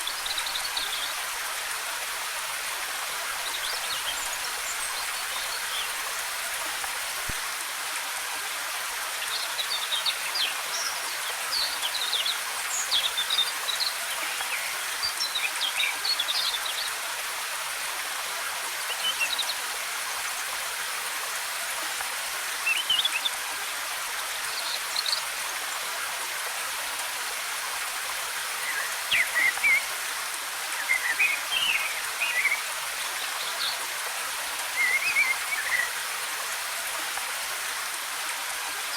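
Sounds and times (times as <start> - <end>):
waterfall rushing: 26.2 - 38.9
small birds twittering: 28.3 - 36.2.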